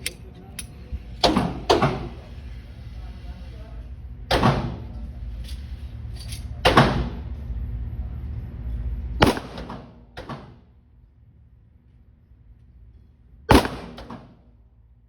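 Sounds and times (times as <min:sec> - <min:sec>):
pistol shots with echo: 0:09.2 - 0:10.6, 0:13.5 - 0:14.4.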